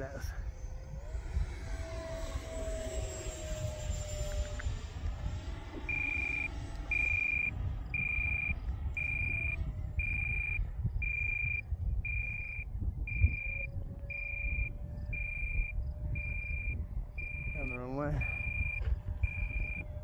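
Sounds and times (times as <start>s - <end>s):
wind rumble on microphone: 0.0s - 20.0s
electronic alarm beeping: 5.8s - 20.0s.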